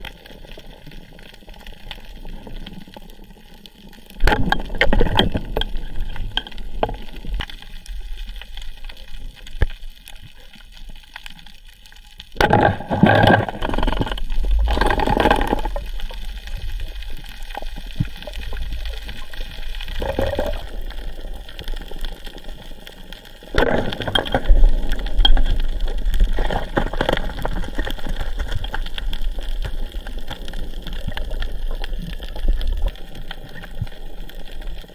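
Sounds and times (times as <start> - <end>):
water gurgling and sloshing: 4.1 - 8.0, 12.4 - 22.6, 23.5 - 34.0.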